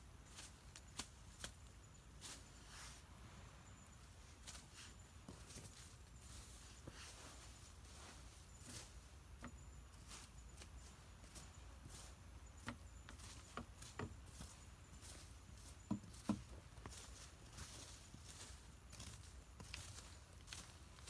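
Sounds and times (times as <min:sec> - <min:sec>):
faint taps and knocks: 0:09.4 - 0:09.7, 0:11.8 - 0:17.1.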